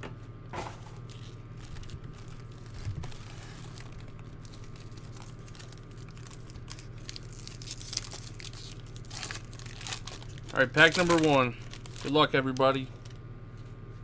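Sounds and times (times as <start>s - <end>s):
foil wrappers crinkling: 0.9s - 13.3s.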